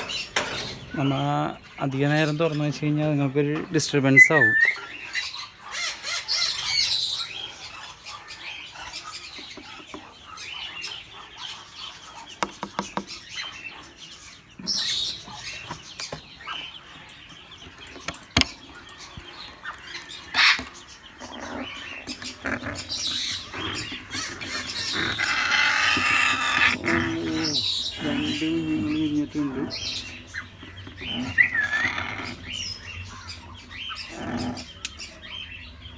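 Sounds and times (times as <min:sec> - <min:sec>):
cage clicks and knocks: 0:00.0 - 0:01.0
parrots chirping and calling: 0:00.0 - 0:35.9.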